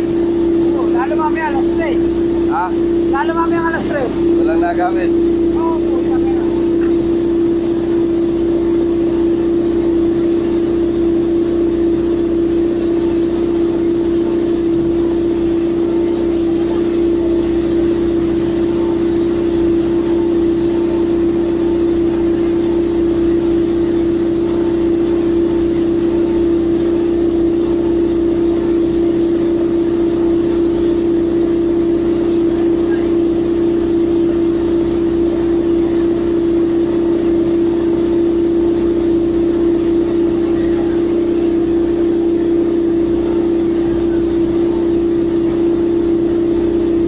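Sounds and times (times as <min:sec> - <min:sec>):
heavy construction machinery humming: 0:00.0 - 0:47.0.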